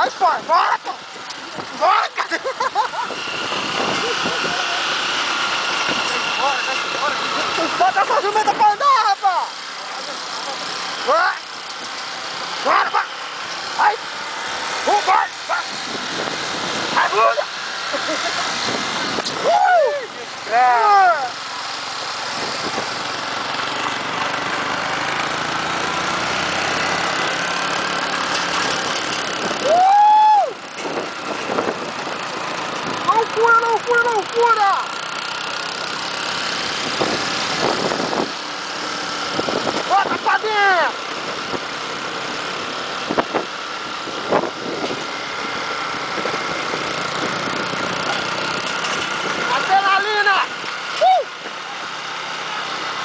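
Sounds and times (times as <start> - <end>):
motorcycle engine running: 0.0 - 53.0
person shouting: 0.2 - 1.0, 1.7 - 2.4, 12.6 - 13.1, 13.8 - 14.0, 14.9 - 15.7, 17.0 - 17.5, 19.4 - 21.4, 29.6 - 30.6, 39.9 - 41.0, 49.6 - 51.3.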